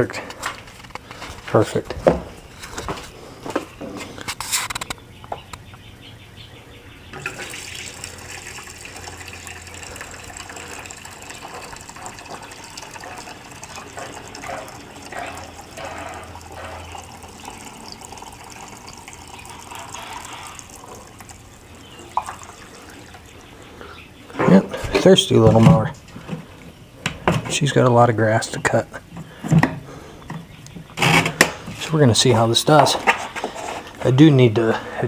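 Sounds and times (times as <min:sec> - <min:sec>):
gasoline pouring into fuel tank: 0:07.2 - 0:23.5.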